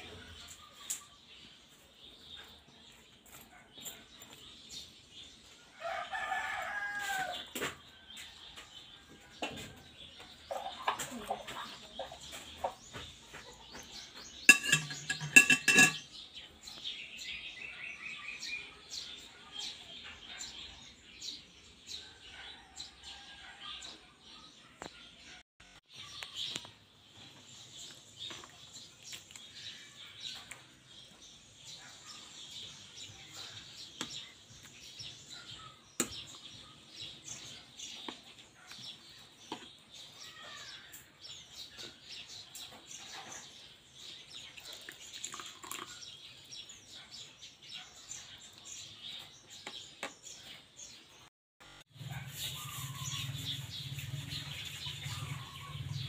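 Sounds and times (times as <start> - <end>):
faint birds chirping: 0.0 - 56.0.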